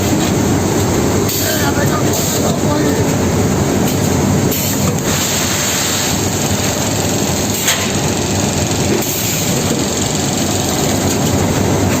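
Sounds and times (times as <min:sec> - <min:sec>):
sewing machine clatter: 0:05.0 - 0:12.0.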